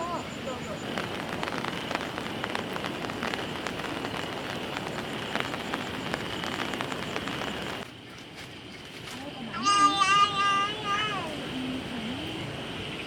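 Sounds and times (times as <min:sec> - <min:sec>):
raindrops ticking: 0:00.0 - 0:07.9
steady rain: 0:00.0 - 0:08.0.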